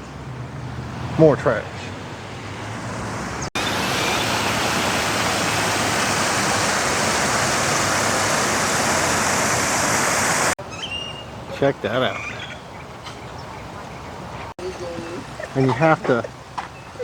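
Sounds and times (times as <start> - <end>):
water rushing and splashing: 2.5 - 10.6.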